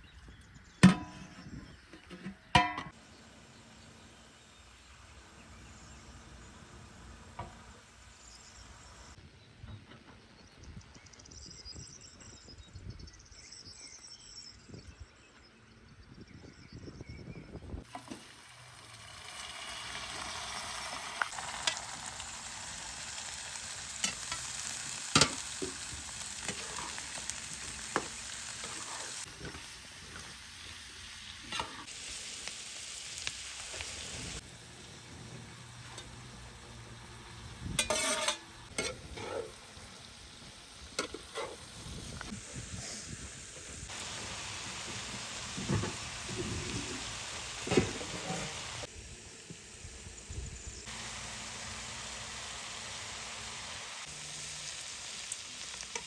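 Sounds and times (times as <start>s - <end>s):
food sizzling in a pan: 2.9s - 9.2s, 17.8s - 56.0s.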